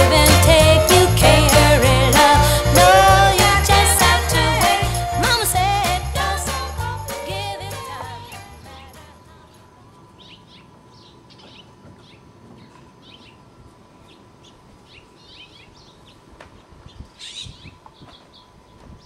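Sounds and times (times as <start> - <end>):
small birds chirping: 10.2 - 18.8.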